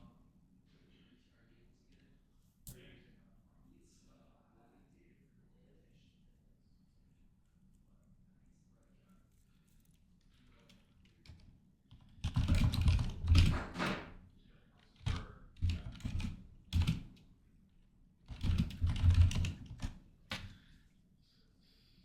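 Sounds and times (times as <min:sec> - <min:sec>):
typing on keyboard: 0:11.1 - 0:14.0, 0:14.8 - 0:17.2, 0:18.3 - 0:20.5.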